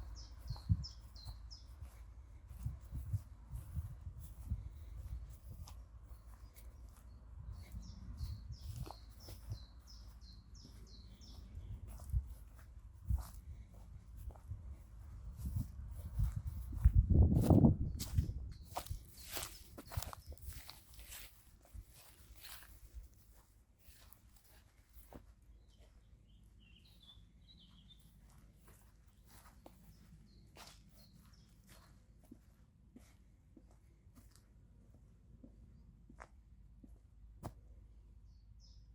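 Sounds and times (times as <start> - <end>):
songbird singing: 0.0 - 14.4, 17.6 - 32.0, 38.2 - 38.9
small birds chirping: 0.0 - 32.6, 38.2 - 38.9
footsteps on a path: 0.0 - 37.6.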